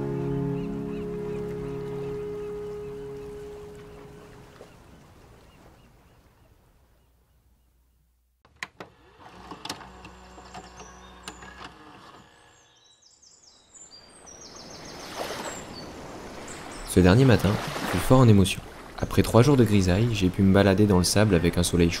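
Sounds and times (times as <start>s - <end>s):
background music: 0.0s - 4.2s
small birds chirping: 0.0s - 8.0s, 10.3s - 17.6s
outdoor ambience: 8.1s - 13.5s.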